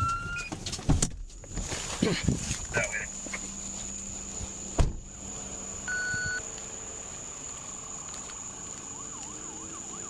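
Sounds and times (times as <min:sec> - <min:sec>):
faint high whine: 0:02.8 - 0:10.0
electronic beep: 0:05.9 - 0:06.4.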